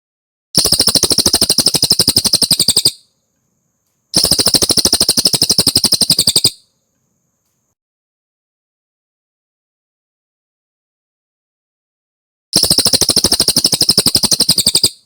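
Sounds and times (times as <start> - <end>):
songbird trilling: 0.6 - 3.0, 4.2 - 6.6, 12.6 - 15.0.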